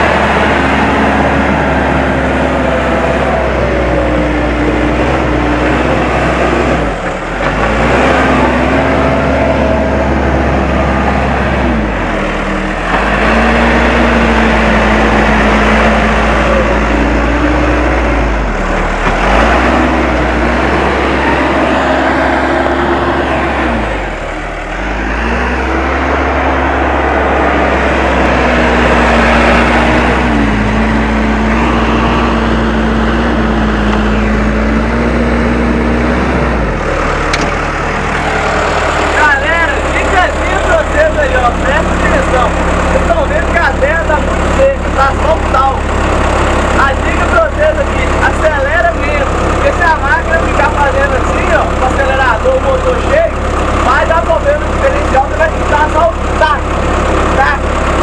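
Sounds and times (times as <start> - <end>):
backhoe diesel engine working: 0.0 - 58.0.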